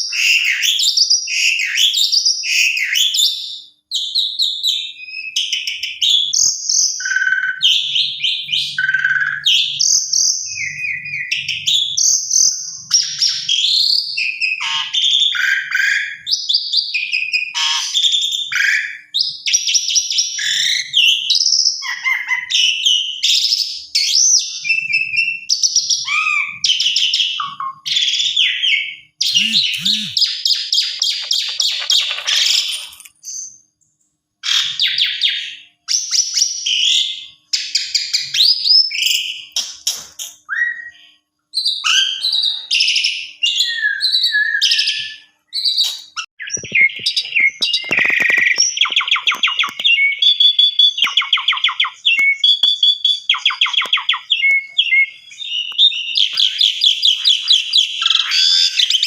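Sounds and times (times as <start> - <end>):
starling singing whistles and chatter: 4.0 - 19.4, 28.5 - 33.1, 40.5 - 59.0
fast rattling bird notes: 30.9 - 33.1, 46.5 - 49.8.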